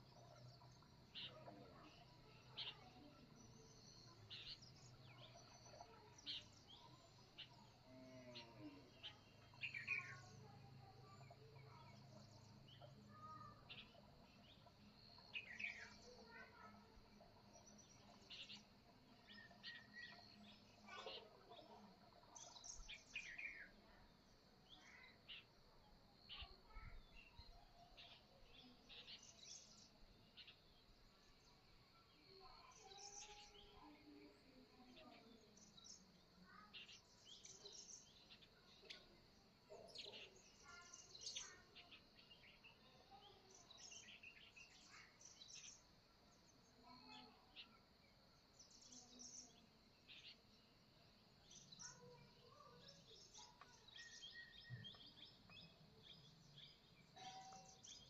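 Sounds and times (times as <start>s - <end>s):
birds chirping: 0.0s - 31.6s, 46.6s - 58.0s.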